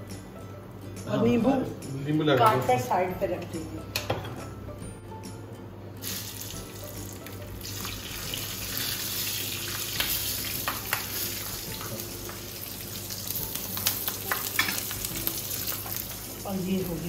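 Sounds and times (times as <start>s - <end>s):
oil sizzling: 5.9s - 17.0s.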